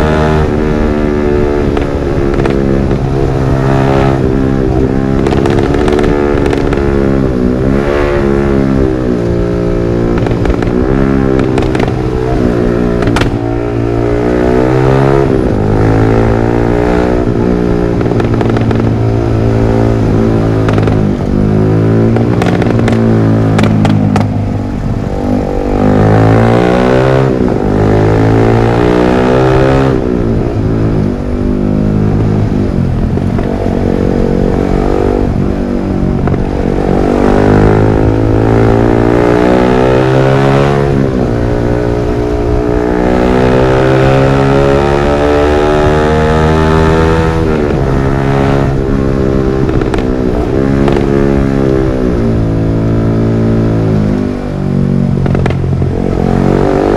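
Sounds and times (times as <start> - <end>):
motorcycle engine revving: 0.0 - 56.9
exhaust pops and crackles: 1.6 - 7.4, 10.1 - 13.5, 17.3 - 24.5, 32.8 - 33.8, 34.5 - 39.3, 48.7 - 52.4, 55.0 - 56.9.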